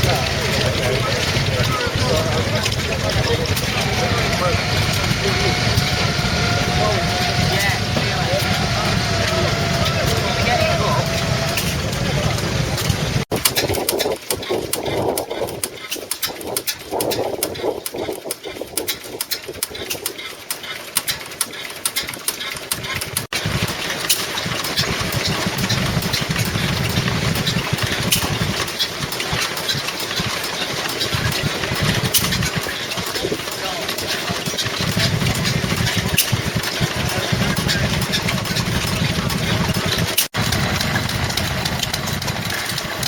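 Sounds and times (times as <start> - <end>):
deep engine running: 0.0 - 13.3, 23.1 - 43.0
old stationary engines running: 0.0 - 43.0
sharp ticks: 12.8 - 43.0.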